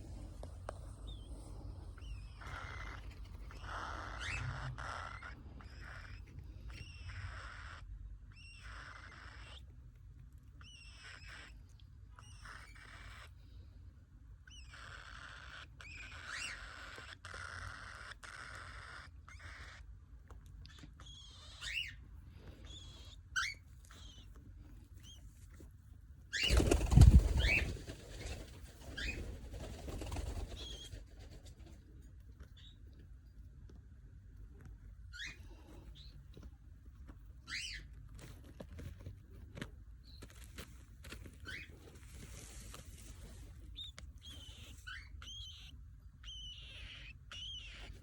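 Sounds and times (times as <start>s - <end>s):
cockatiel calling: 2.0s - 9.7s, 10.6s - 13.3s, 14.4s - 19.9s, 20.7s - 22.0s, 22.6s - 24.3s, 26.3s - 27.8s, 28.8s - 29.3s, 35.1s - 36.1s, 37.4s - 37.9s, 41.4s - 42.7s, 43.3s - 48.0s.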